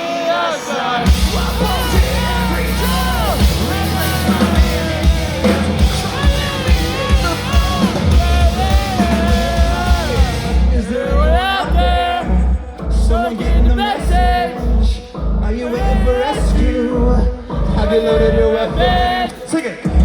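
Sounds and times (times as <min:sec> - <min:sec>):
rock band playing: 0:00.0 - 0:13.2
person singing: 0:00.0 - 0:20.0
pounding drums: 0:01.0 - 0:10.9.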